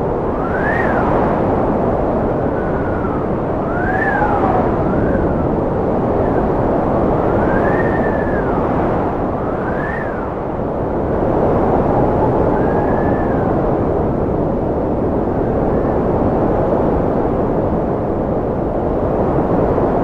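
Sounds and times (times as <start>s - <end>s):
wind rushing and whistling: 0.0s - 20.0s.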